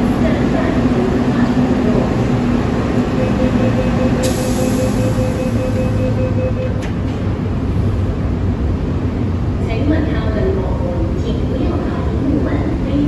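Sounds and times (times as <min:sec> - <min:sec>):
train running gear whine: 0:00.0 - 0:09.6
electric train rumble: 0:00.0 - 0:13.0.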